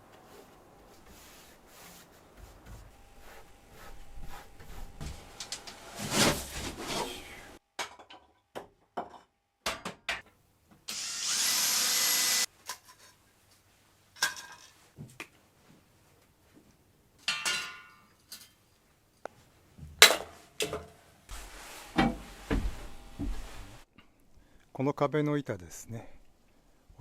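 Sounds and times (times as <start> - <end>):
power tool whining: 10.9 - 12.5
knocks and handling noises: 19.2 - 23.8.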